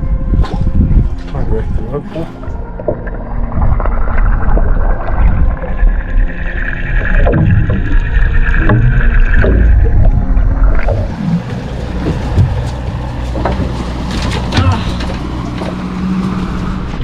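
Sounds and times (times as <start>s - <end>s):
boat engine rumble: 0.0s - 17.0s
knocks on boat: 12.0s - 15.8s.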